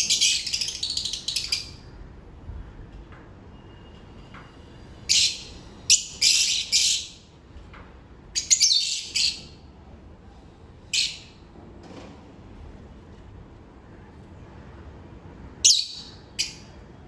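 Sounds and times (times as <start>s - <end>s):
lovebirds harsh chirps: 0.0s - 1.7s, 5.1s - 7.2s, 8.4s - 9.5s.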